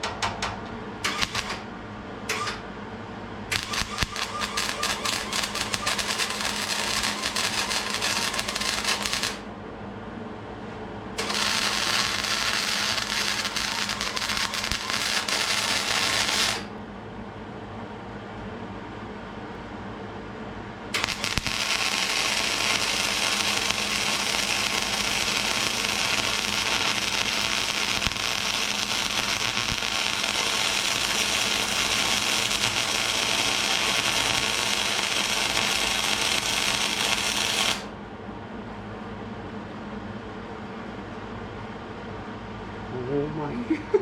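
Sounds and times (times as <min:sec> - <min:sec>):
welding arc crackling: 0:01.0 - 0:01.6, 0:02.3 - 0:02.6, 0:03.5 - 0:09.4, 0:11.2 - 0:16.7, 0:21.0 - 0:37.9.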